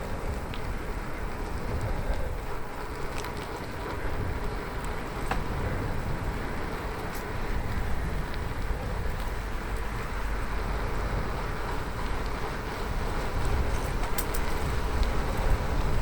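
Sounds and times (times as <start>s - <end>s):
bicycle tyres rolling on road: 0.0s - 16.0s
wind on microphone: 0.0s - 16.0s
light ticks: 0.3s - 5.6s, 13.2s - 15.6s.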